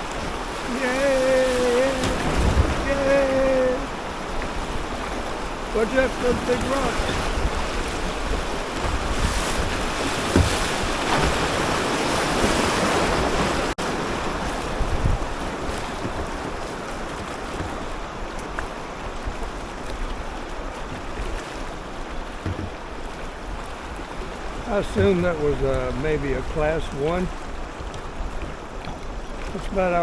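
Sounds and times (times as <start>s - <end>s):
wind buffeting microphone: 0.0s - 29.8s
water rushing: 0.0s - 30.0s
low knocks: 22.4s - 22.8s.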